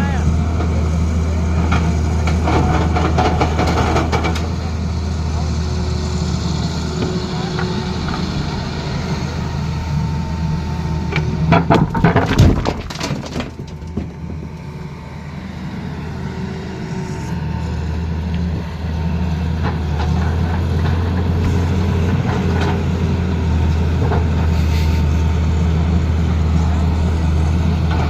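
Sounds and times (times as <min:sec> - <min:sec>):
excavator diesel engine droning: 0:00.0 - 0:28.0.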